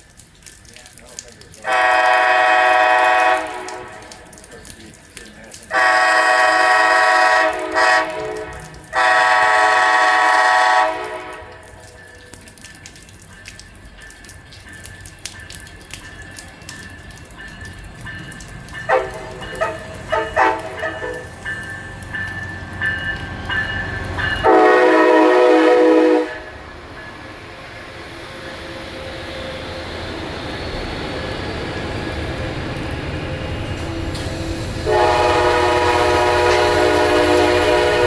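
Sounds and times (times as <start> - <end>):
train air horn blasts: 1.6 - 4.3, 5.7 - 11.8, 18.9 - 21.3, 24.4 - 26.6, 33.9 - 38.0
train rumbling past: 1.7 - 38.0.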